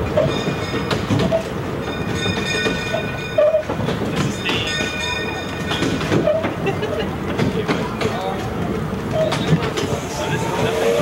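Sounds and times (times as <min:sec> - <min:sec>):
train coach rumbling on track: 0:00.0 - 0:11.0
wheels clicking over rails: 0:00.0 - 0:11.0
high wheel squeal: 0:00.2 - 0:03.8, 0:09.1 - 0:11.0.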